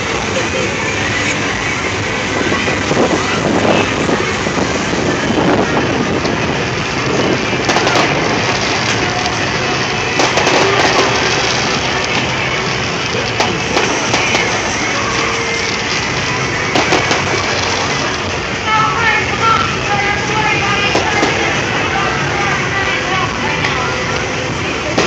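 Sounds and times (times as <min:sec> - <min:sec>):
outdoor noise: 0:00.0 - 0:25.0
voices: 0:00.0 - 0:25.0
firework bangs and crackles: 0:01.1 - 0:18.6, 0:20.4 - 0:22.1, 0:24.5 - 0:25.0.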